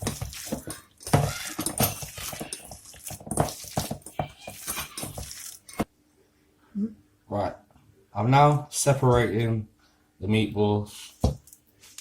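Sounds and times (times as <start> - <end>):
hands squelching meat mixture: 0.0 - 5.0.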